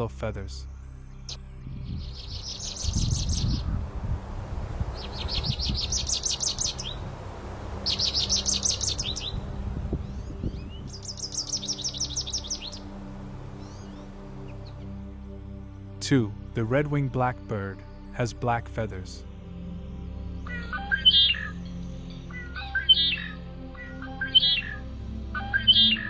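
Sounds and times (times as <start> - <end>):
bird twittering trills: 1.3 - 3.8, 4.9 - 7.1, 7.8 - 13.0, 13.6 - 14.8, 20.4 - 26.0.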